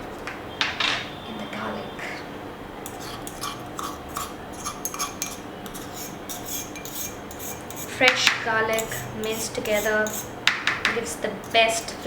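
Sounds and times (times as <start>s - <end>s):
utensil clinking against a bowl: 2.8s - 12.0s.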